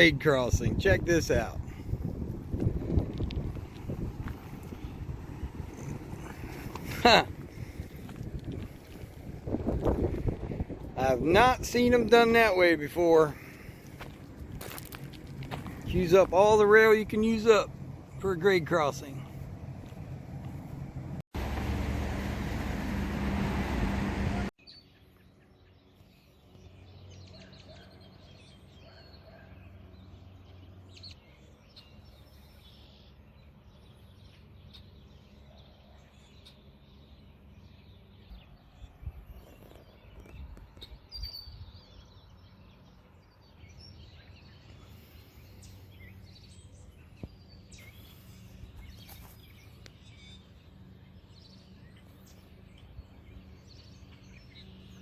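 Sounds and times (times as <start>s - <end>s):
small birds chirping: 0.0s - 21.9s, 24.6s - 55.0s
loud rush of wind: 0.5s - 12.2s.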